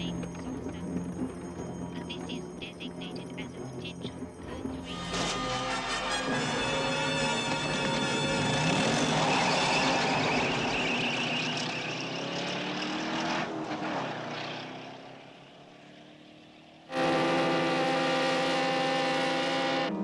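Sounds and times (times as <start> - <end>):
loud steady drone: 0.0 - 11.0, 16.9 - 20.0
car engine revving hard: 8.4 - 14.8, 16.9 - 20.0.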